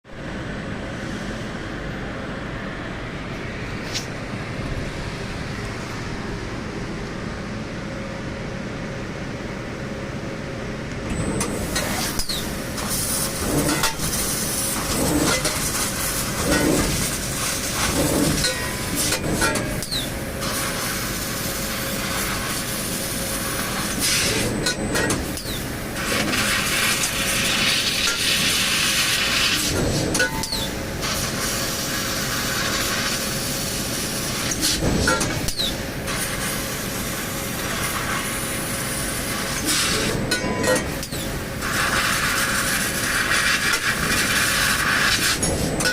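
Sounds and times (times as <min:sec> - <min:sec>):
machine mechanical din: 0:11.0 - 0:20.2
machine hiss: 0:11.5 - 0:24.6, 0:25.2 - 0:40.3, 0:40.9 - 0:45.8.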